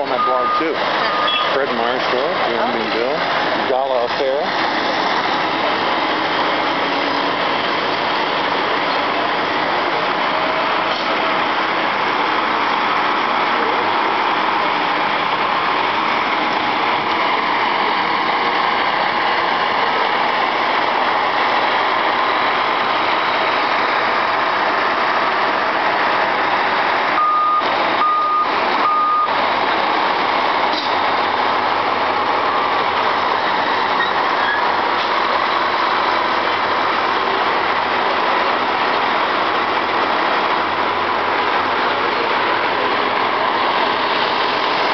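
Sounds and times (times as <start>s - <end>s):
heavy truck engines running: 0.0s - 44.9s
backup alarm beeps: 0.1s - 1.5s, 27.2s - 29.4s.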